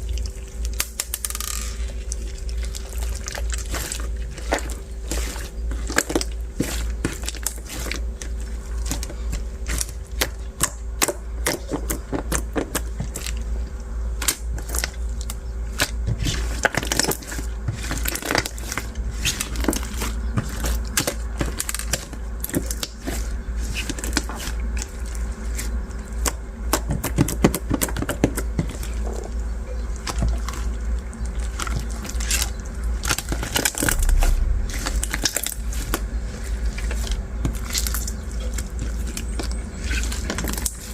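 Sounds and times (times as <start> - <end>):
bead slime crunching: 32.2 - 39.2.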